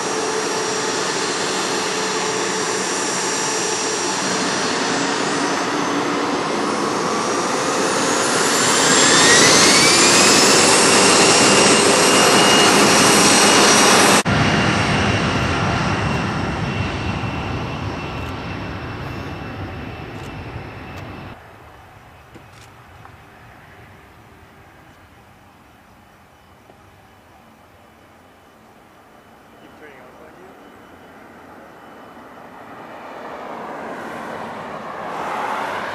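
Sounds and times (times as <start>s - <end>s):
jet engines whining: 0.0s - 35.9s
quieter jet roar: 0.0s - 35.9s.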